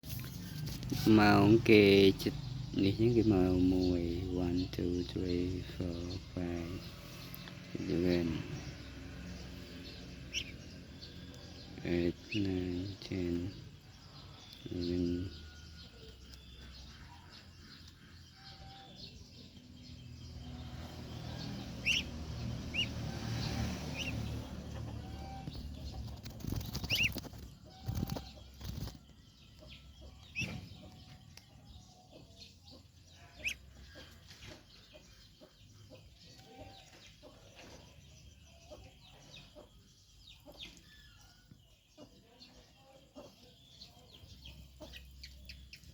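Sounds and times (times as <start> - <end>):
ducklings peeping: 0.1 - 45.9
rustling and wing flapping: 25.4 - 29.1.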